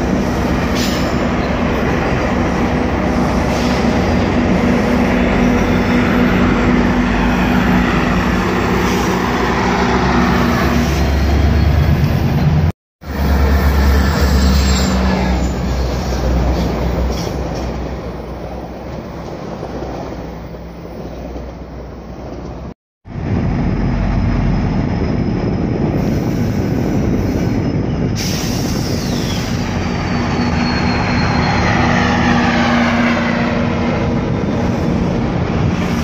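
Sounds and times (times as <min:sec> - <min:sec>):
passenger train rumbling: 0:00.0 - 0:36.0
train wheel squeal: 0:00.2 - 0:01.7, 0:10.2 - 0:18.5, 0:26.0 - 0:33.4.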